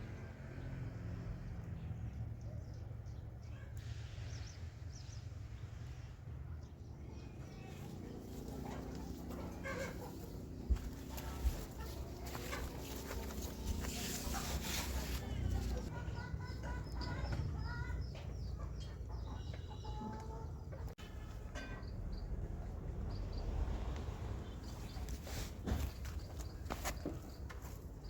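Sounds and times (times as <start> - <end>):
chickens clucking: 7.7 - 21.9.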